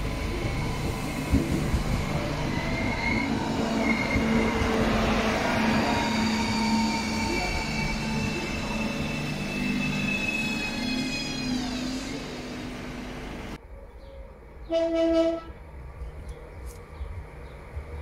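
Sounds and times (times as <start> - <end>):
train horn blast: 14.7 - 15.6.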